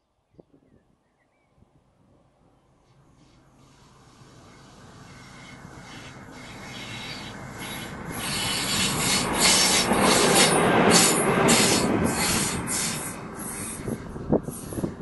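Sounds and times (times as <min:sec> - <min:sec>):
diesel freight train passing: 0:02.3 - 0:15.0
wheels grinding on rails: 0:05.1 - 0:15.0.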